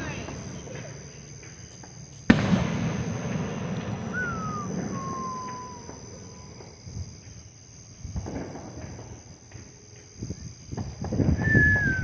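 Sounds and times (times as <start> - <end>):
low rumbling echo: 2.3 - 6.4
firework bang: 2.3 - 6.8, 8.2 - 9.3
falling whistle: 4.0 - 6.6, 11.3 - 12.0.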